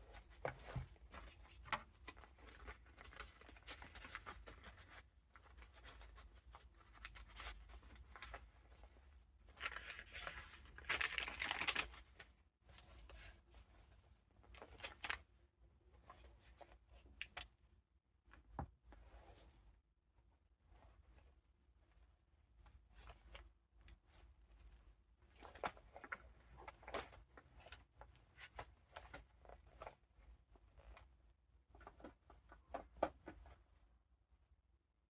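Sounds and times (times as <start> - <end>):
paper pages rustling: 9.5 - 13.4.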